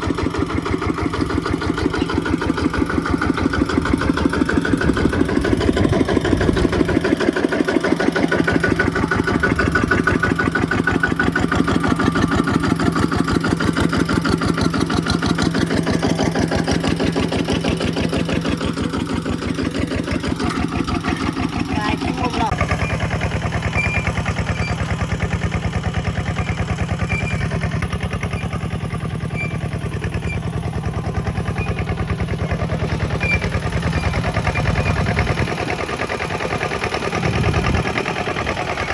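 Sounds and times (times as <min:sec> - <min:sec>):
diesel engine chugging: 0:00.0 - 0:38.9.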